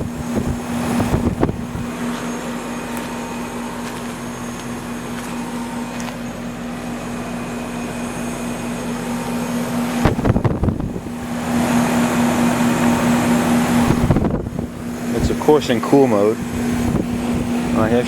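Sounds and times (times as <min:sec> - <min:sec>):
wind rumble on microphone: 0:00.0 - 0:02.0, 0:09.9 - 0:15.7, 0:16.4 - 0:18.0
compressor hum: 0:00.0 - 0:18.0
condenser fan rushing: 0:00.0 - 0:18.0.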